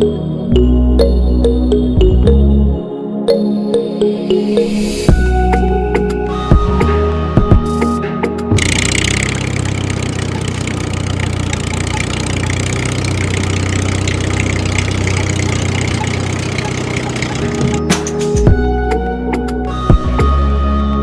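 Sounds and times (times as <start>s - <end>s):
small motor whirring: 8.6s - 17.8s.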